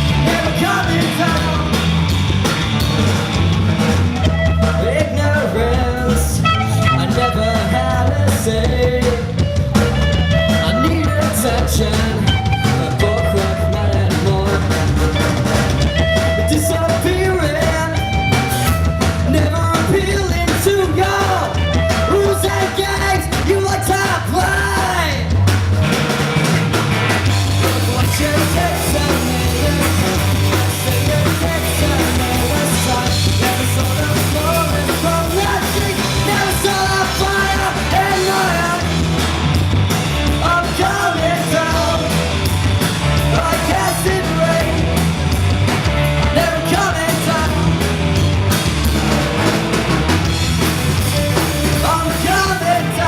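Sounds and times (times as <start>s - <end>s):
live rock band playing: 0.0s - 53.0s.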